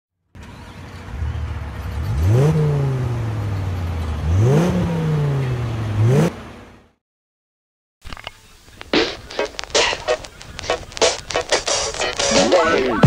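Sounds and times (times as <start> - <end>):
car engine idling and revving: 0.3 - 7.0.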